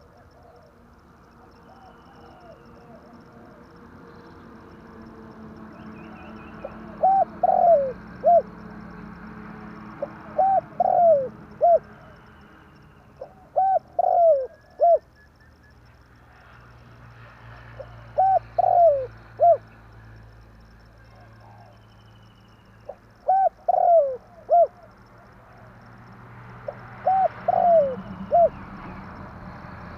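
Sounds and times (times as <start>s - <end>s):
dove cooing: 1.5s - 3.7s, 6.2s - 8.9s, 9.7s - 12.3s, 13.2s - 15.2s, 17.8s - 19.7s, 22.9s - 25.7s, 26.6s - 29.0s.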